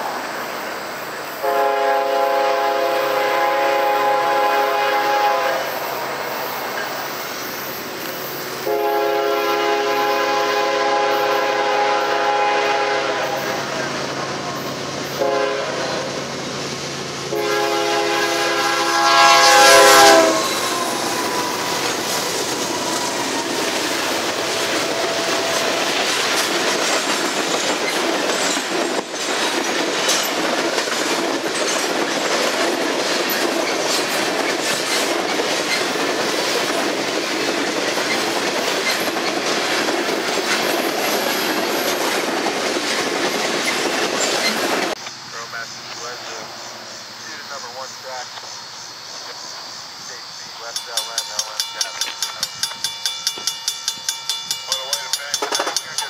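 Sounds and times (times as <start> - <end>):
locomotive horn blasts: 1.4 - 6.4, 8.6 - 13.8, 14.5 - 16.2, 17.3 - 22.1, 24.6 - 25.9
wheels clacking over rails: 20.4 - 45.0, 50.8 - 56.0.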